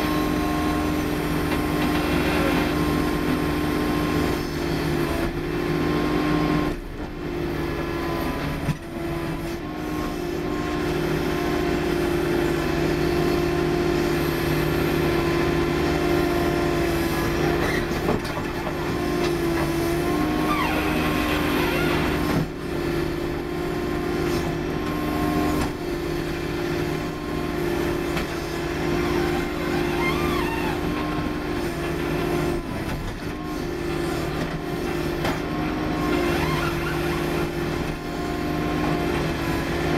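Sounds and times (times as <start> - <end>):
skid steer engine running: 0.0 - 39.9.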